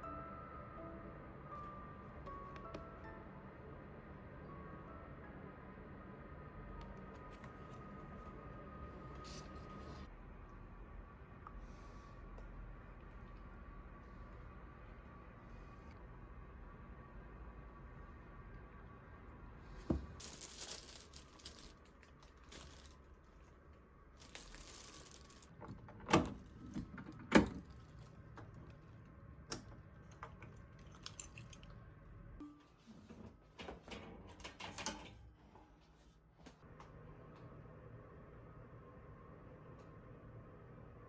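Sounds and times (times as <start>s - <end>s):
packaging rustling and crinkling: 19.9s - 23.5s, 24.2s - 25.6s.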